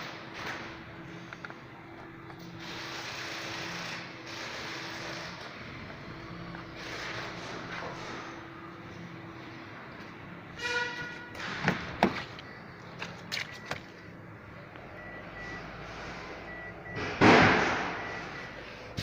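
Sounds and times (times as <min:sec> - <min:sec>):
faint repeating high beep: 0:14.9 - 0:15.7, 0:18.0 - 0:18.6
short electronic beep: 0:17.9 - 0:18.6.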